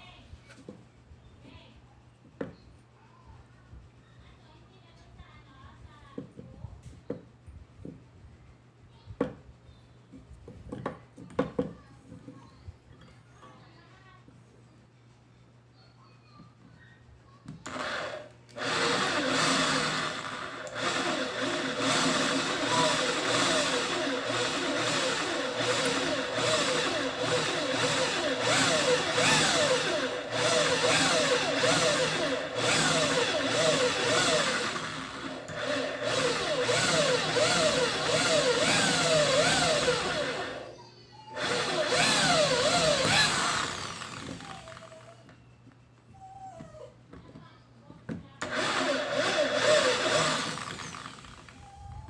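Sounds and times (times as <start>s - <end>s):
mini drill press motor whine: 17.6s - 40.7s, 41.3s - 45.4s, 48.4s - 52.0s.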